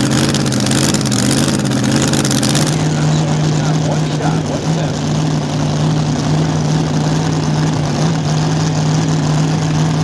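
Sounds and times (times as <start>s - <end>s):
tractor engine running at high speed: 0.0s - 3.0s.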